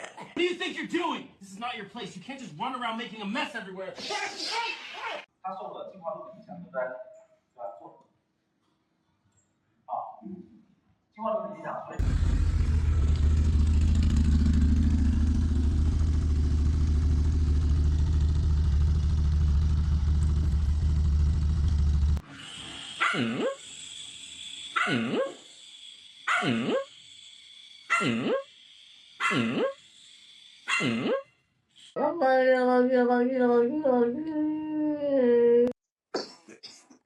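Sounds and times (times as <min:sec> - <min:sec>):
steady low rumble: 0:12.0 - 0:22.2
dog barking: 0:23.0 - 0:23.6, 0:24.7 - 0:25.4, 0:26.3 - 0:26.9, 0:27.9 - 0:28.4, 0:29.2 - 0:29.8, 0:30.7 - 0:31.2.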